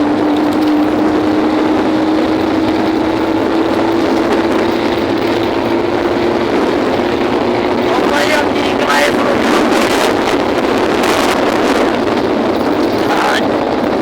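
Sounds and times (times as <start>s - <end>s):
motorcycle engine at high revs: 0.0s - 14.0s
rushing noise: 6.2s - 13.6s.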